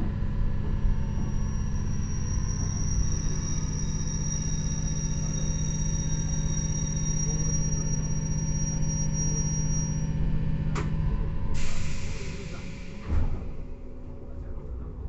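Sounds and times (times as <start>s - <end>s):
train wheels and motors rumbling: 0.0s - 15.0s
high-pitched squeal: 1.0s - 10.1s.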